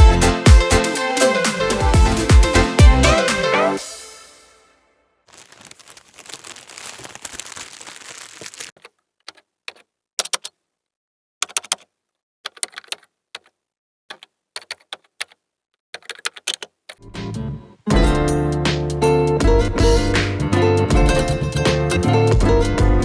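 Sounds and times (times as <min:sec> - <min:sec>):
keyboard typing clicks: 0:11.4 - 0:11.9, 0:16.0 - 0:16.8.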